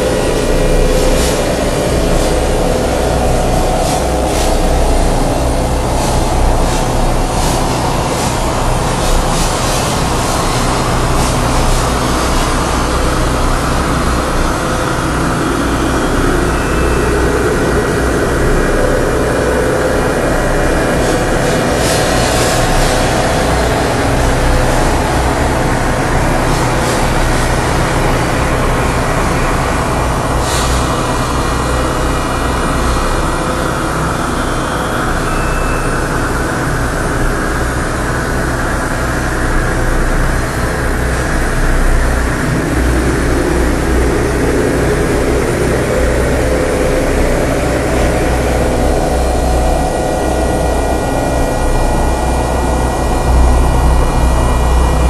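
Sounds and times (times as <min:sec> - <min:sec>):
faint high steady tones: 0:00.0 - 0:38.0
low rumbling drone: 0:00.0 - 0:55.0.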